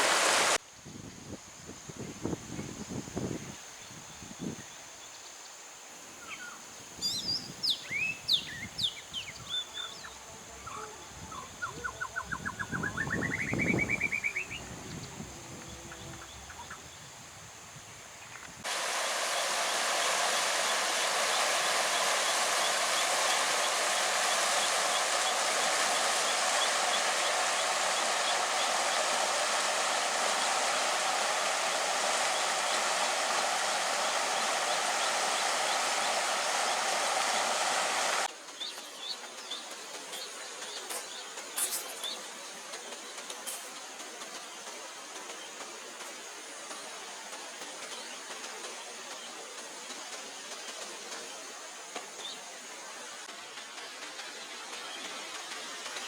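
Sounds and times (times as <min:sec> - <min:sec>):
running water rushing: 0:00.0 - 0:00.6, 0:18.6 - 0:56.0
birds chirping: 0:18.8 - 0:42.3.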